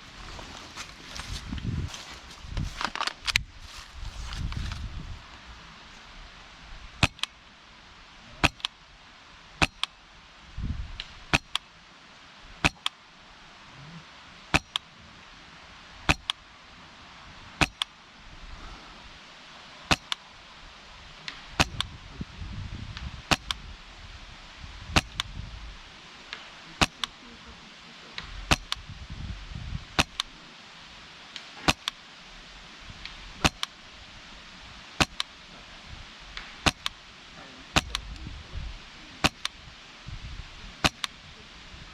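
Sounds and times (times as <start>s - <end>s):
airsoft rifle shots: 7.0s - 7.3s, 8.4s - 8.8s, 12.6s - 12.9s, 19.9s - 20.2s, 21.6s - 21.9s, 23.3s - 23.6s, 24.9s - 25.3s, 26.4s - 27.2s, 28.2s - 28.8s, 30.0s - 30.3s, 31.4s - 32.0s, 33.4s - 33.8s, 35.0s - 35.3s, 36.4s - 37.0s, 37.8s - 38.1s, 39.2s - 39.6s, 40.8s - 41.2s.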